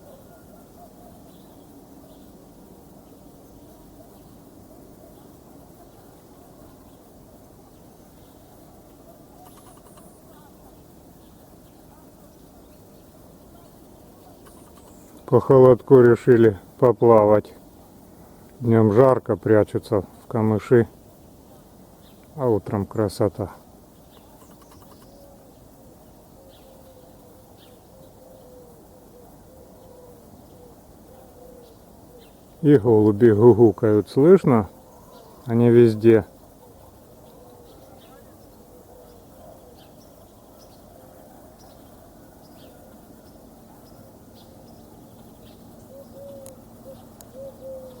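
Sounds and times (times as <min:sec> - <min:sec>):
pigeons cooing: 0:00.0 - 0:01.5, 0:11.9 - 0:15.7, 0:24.2 - 0:25.6, 0:26.3 - 0:32.5, 0:34.4 - 0:48.0
faint high bird chirps: 0:03.0 - 0:16.6, 0:23.9 - 0:48.0.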